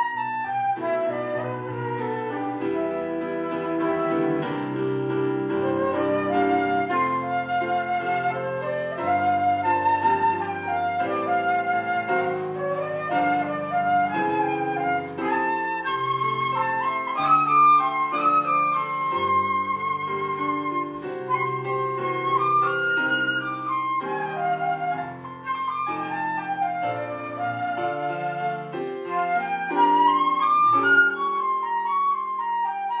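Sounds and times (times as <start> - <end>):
flute playing slow melody: 0.0 - 33.0.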